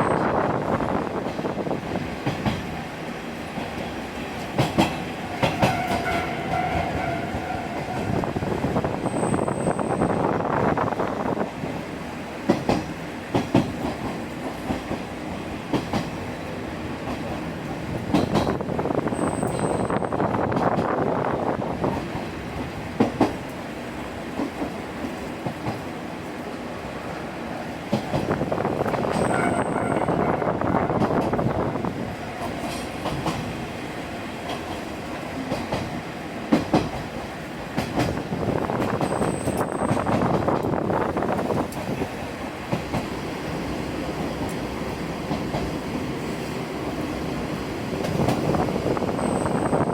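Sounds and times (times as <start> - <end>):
diesel train running on track: 0.0 - 49.9
wheels clacking over rail joints: 3.5 - 8.2, 12.4 - 16.3, 17.0 - 18.7, 21.8 - 23.5, 34.4 - 43.3, 44.0 - 46.2.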